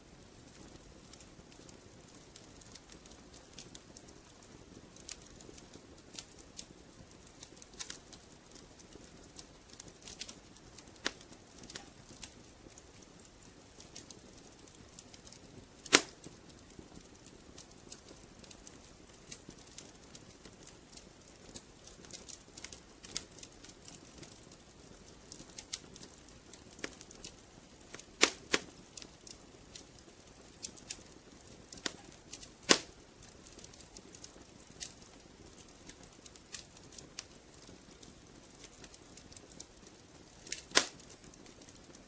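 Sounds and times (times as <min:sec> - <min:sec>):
wood fire crackling: 0:00.0 - 0:42.0
sharp fire pop: 0:15.8 - 0:16.2, 0:27.9 - 0:28.7, 0:32.7 - 0:33.0, 0:40.5 - 0:41.1.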